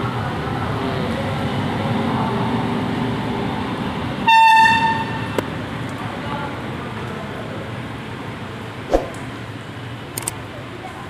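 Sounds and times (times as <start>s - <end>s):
locomotive horn toot: 4.3s - 5.2s.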